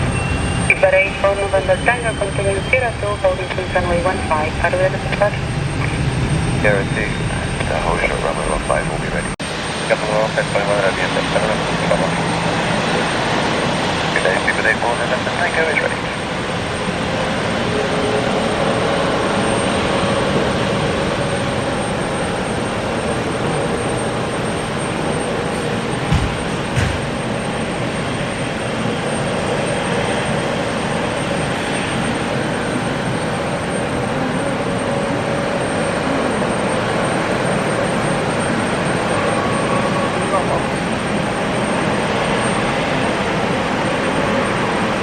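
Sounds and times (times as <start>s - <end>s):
jet airliner engines running: 0.0s - 45.0s
short thumps: 26.0s - 27.3s.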